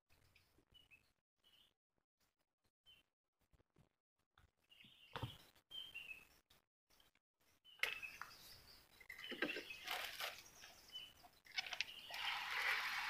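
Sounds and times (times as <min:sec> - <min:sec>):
small bird chirping: 0:04.6 - 0:12.8
rustling or scraping noise: 0:11.6 - 0:13.0.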